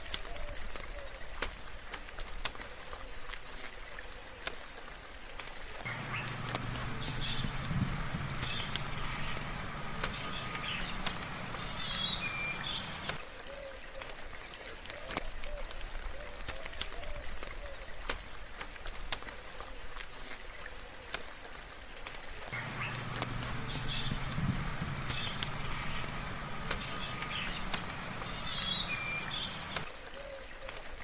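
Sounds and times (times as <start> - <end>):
soft rain: 0.0 - 31.0
birds chirping: 5.8 - 13.2, 22.5 - 29.9
low hum: 5.9 - 13.2, 22.6 - 29.9.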